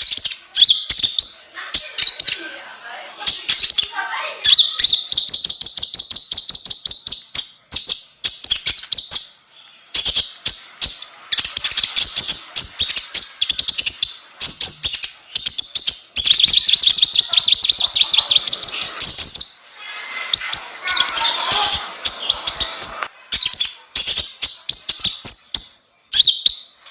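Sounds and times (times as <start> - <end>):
sunbird singing rapid high notes: 15.6 - 26.9.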